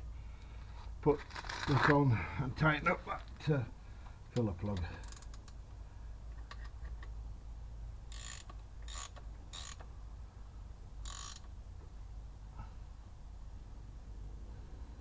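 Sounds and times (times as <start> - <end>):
ratchet wrench clicking: 5.0 - 5.6, 8.1 - 9.9, 11.0 - 11.5.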